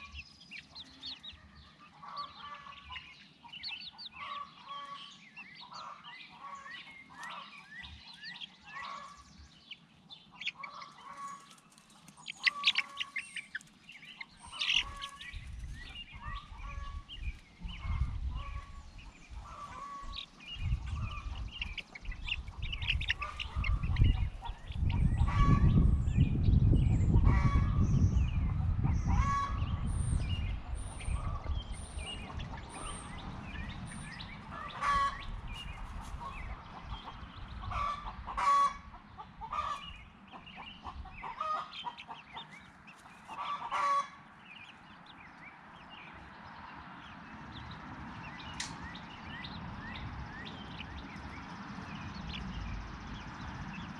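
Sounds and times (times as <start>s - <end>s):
poultry calling: 0.0s - 53.9s
loud low rumble: 20.5s - 38.2s.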